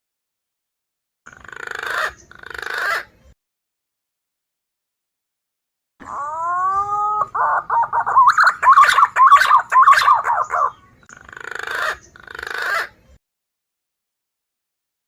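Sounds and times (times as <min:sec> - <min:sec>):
harsh rasping bird calls: 0:01.3 - 0:03.2, 0:06.0 - 0:13.0
pigeon whistling and warbling: 0:06.0 - 0:12.9.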